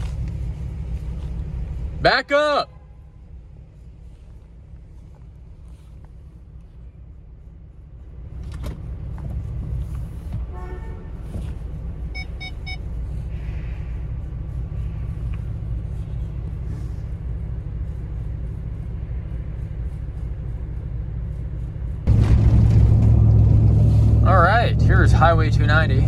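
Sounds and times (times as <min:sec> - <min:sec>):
vehicle rumble: 0:00.0 - 0:26.0
car horn toot: 0:10.5 - 0:11.5, 0:23.2 - 0:26.0.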